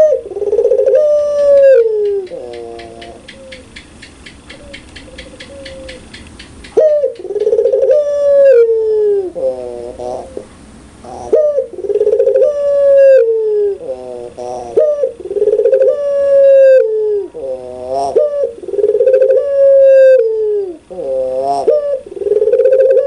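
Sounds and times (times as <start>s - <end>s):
dove cooing loudly: 0.0s - 23.0s
faint fast ticking: 1.4s - 7.8s.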